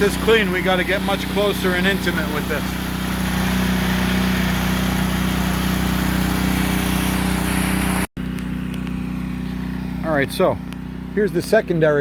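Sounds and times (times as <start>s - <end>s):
water spray hissing: 0.0s - 8.1s
small petrol engine running: 0.0s - 12.0s.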